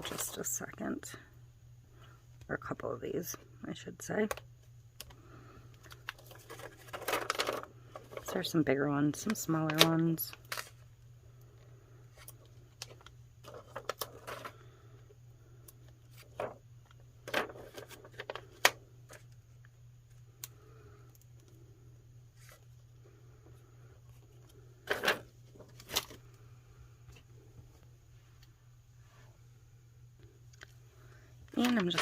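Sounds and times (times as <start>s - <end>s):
steady low hum: 0.0s - 32.0s
paper rustling: 5.8s - 8.4s, 16.0s - 16.6s, 17.2s - 19.3s, 31.6s - 32.0s.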